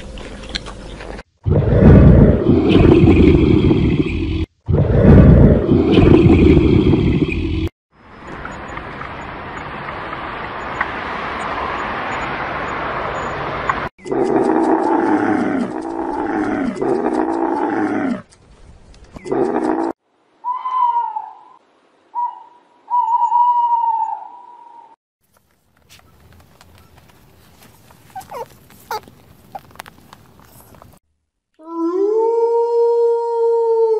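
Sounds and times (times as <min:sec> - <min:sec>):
camel calls: 0:27.5 - 0:30.7.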